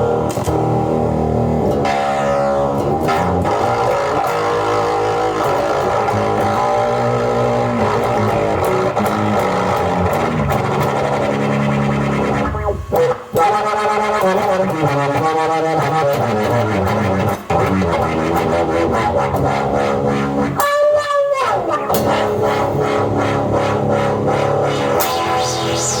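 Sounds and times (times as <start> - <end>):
electronic music with percussion: 1.7 - 26.0
resonant synth tone gliding down: 21.4 - 26.0.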